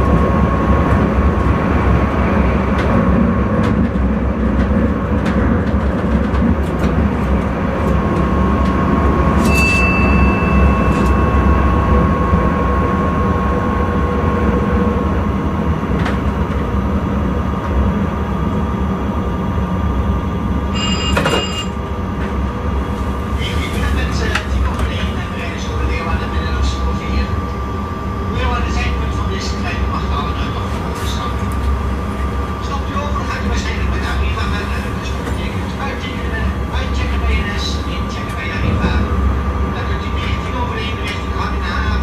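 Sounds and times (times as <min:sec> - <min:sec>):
train rumbling on rails: 0:00.0 - 0:42.0
short high tone: 0:09.5 - 0:11.7.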